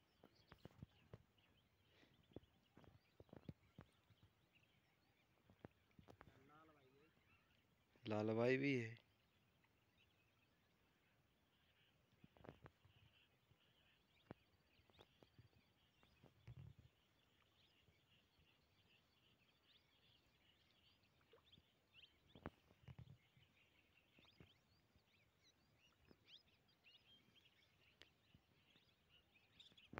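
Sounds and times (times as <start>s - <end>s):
faint small bird chirping: 9.0s - 29.9s.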